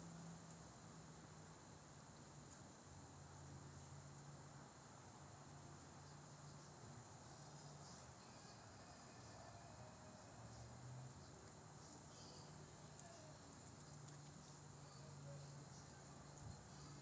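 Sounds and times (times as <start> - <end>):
crickets trilling: 5.4 - 17.0.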